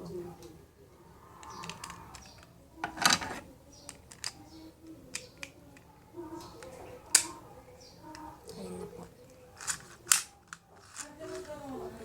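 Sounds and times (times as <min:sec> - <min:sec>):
plastic parts clicking: 0:01.4 - 0:04.5, 0:05.1 - 0:07.4, 0:09.2 - 0:11.7.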